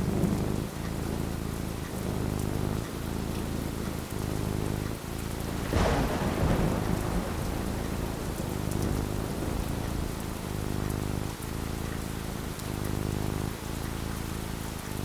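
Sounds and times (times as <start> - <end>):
steady rain falling: 0.0 - 15.0
thunderclap rumbling: 4.8 - 13.7.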